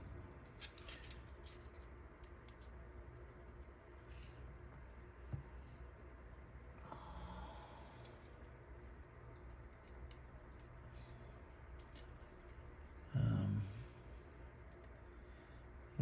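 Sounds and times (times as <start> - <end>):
small metal parts clicking: 0.4 - 2.8, 11.8 - 12.6.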